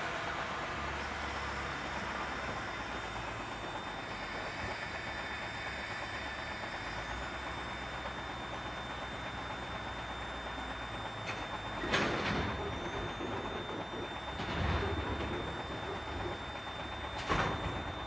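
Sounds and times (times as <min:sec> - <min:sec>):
road noise: 0:00.0 - 0:08.4
truck diesel engine hum: 0:00.0 - 0:18.0.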